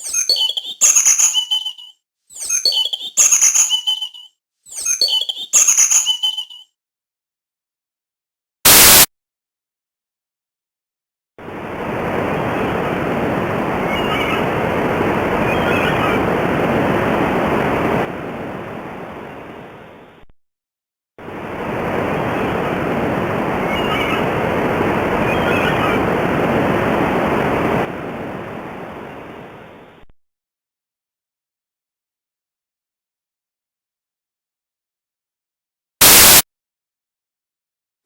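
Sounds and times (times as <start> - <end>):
faint bird chirps: 0.0 - 6.7
steady rushing water noise: 11.4 - 20.0, 21.2 - 30.0.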